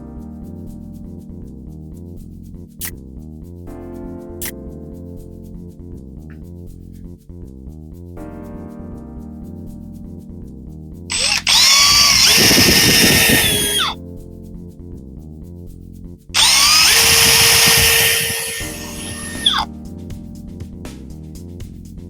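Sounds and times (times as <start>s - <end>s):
power drill whine: 11.1s - 14.0s, 16.4s - 19.6s
background music: 18.6s - 22.0s.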